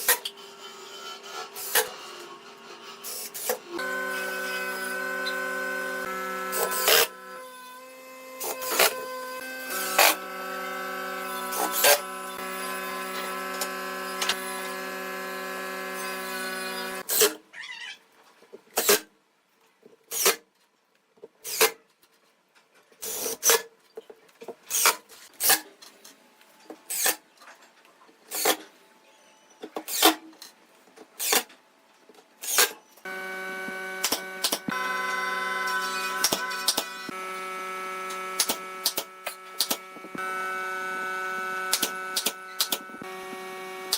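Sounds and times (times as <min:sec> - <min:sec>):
workshop machine humming: 0:03.3 - 0:17.1, 0:33.0 - 0:43.9.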